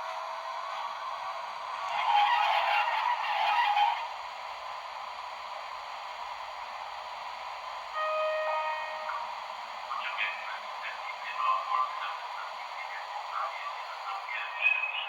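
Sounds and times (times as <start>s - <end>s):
steady hum: 3.8s - 15.0s
loud horn-like blast: 8.0s - 9.1s.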